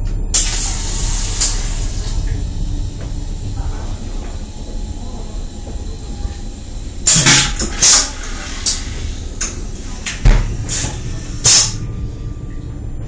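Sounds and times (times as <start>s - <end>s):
high-speed train rumble: 0.0s - 13.0s
heavy thump: 10.2s - 11.0s.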